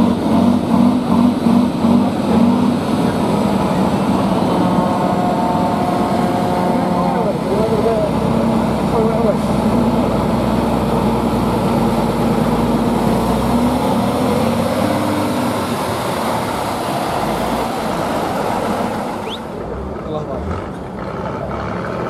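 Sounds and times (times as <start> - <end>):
heavy truck engine running: 0.0 - 22.0.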